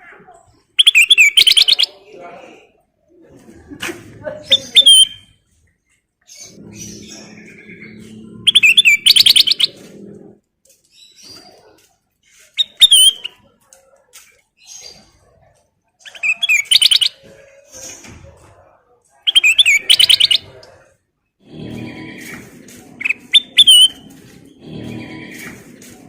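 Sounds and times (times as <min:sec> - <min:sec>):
bird whistling song: 0:00.8 - 0:01.9, 0:04.7 - 0:05.3, 0:06.4 - 0:09.8, 0:12.6 - 0:13.3, 0:16.0 - 0:17.2, 0:19.3 - 0:20.5, 0:23.0 - 0:24.2
faint bird chips: 0:10.7 - 0:15.4, 0:22.1 - 0:26.0.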